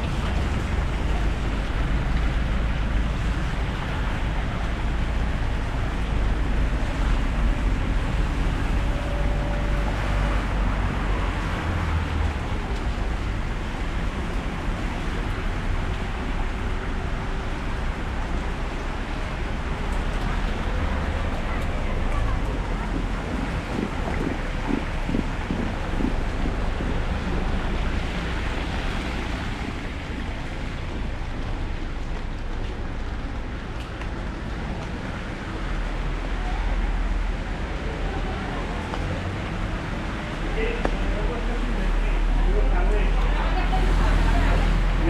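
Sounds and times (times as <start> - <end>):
deep low rumble: 0.0 - 33.3
heavy rain falling: 0.0 - 45.0.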